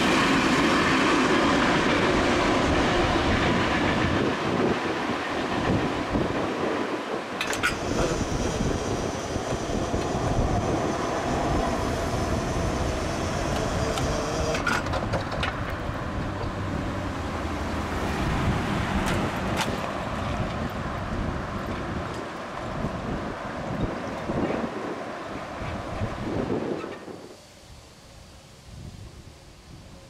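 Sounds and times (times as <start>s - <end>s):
train wheels rumbling on rails: 0.0s - 27.4s
sharp clanks: 7.4s - 8.2s.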